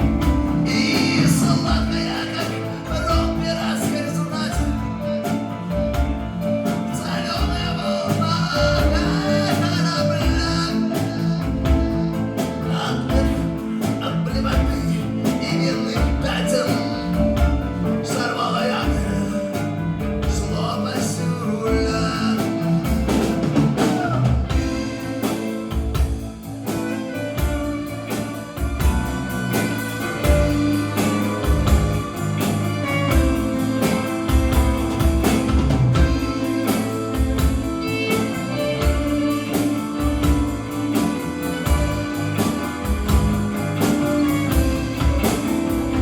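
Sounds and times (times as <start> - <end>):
live band playing: 0.0 - 46.0
steady drum beat: 0.0 - 46.0.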